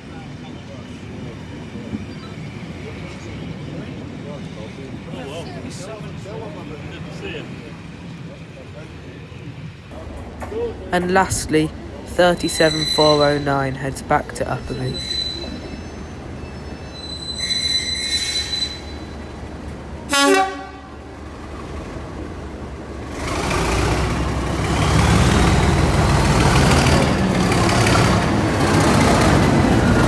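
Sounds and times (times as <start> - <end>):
diesel locomotive engine running: 0.0 - 30.0
locomotive horn toot: 20.1 - 21.2.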